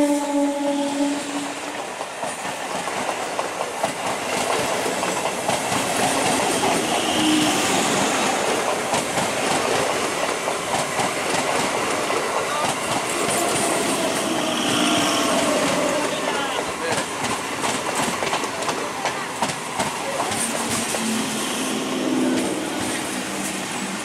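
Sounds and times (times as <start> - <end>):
train coaches rumbling: 0.0 - 24.0
wheels clicking over rail joints: 8.3 - 13.8.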